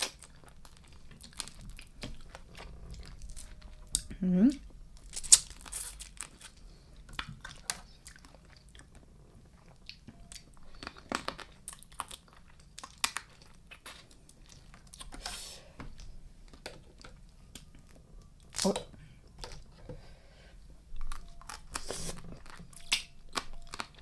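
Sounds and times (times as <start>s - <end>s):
person chewing and biting: 0.0s - 4.1s, 5.0s - 19.8s, 21.0s - 24.0s
wet crunches and mouth clicks: 0.0s - 4.1s, 5.0s - 9.0s, 9.6s - 15.2s, 21.0s - 24.0s.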